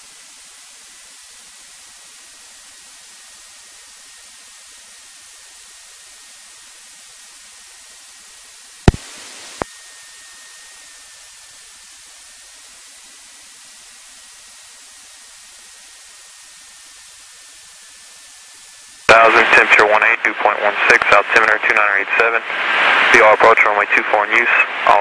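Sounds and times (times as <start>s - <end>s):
faint high whine: 0.7s - 25.0s
radio click: 8.8s - 9.7s, 19.3s - 22.3s
radio intercom hiss: 8.8s - 11.0s, 19.0s - 25.0s.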